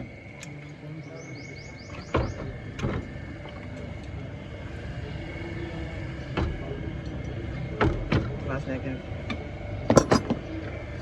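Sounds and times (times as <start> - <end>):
sharp knock: 10.0 - 10.3.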